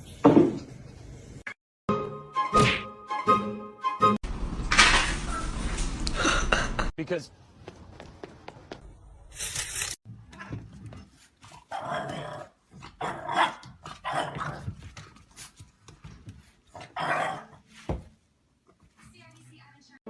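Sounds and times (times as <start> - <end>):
dog growling and barking: 11.6 - 14.8, 16.7 - 17.6.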